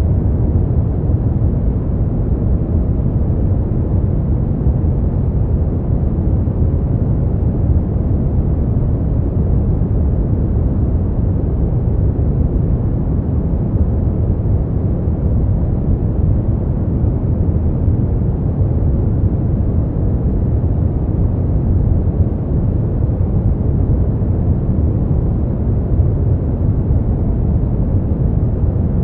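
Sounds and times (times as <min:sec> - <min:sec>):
deep muffled steady noise: 0:00.0 - 0:29.0.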